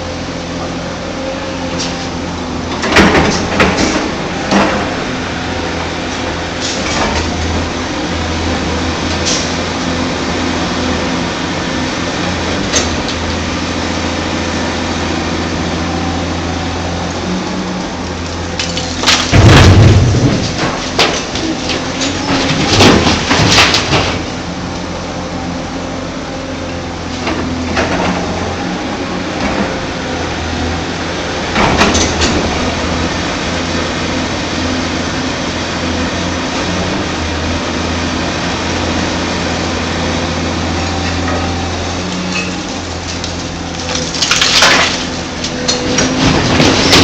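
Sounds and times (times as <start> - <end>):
excavator diesel engine running: 0.0 - 47.0
rock dropping into truck bed: 18.6 - 24.3.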